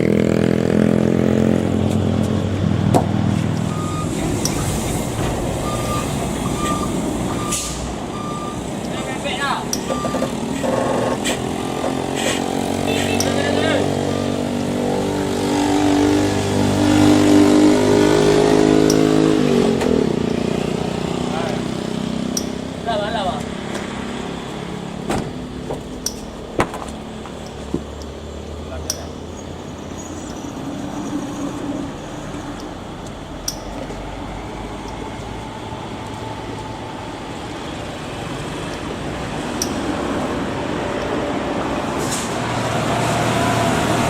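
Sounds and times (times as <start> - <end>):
vehicle engine running: 0.0 - 44.0
sharp click: 28.8 - 29.1.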